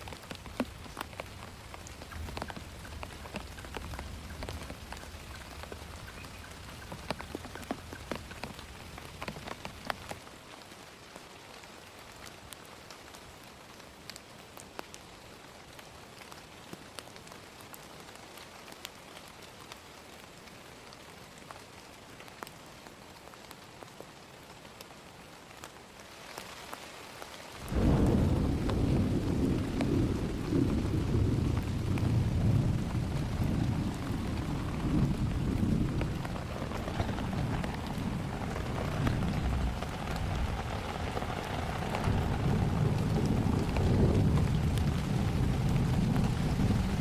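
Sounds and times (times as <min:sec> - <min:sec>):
low rumble of thunder: 0:00.0 - 0:10.2, 0:27.6 - 0:47.0
steady rain: 0:00.0 - 0:47.0.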